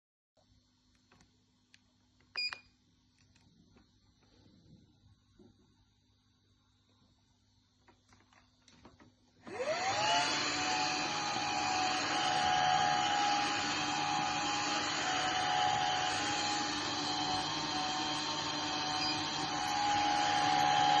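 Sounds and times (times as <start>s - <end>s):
vacuum motor whine: 9.4s - 21.0s.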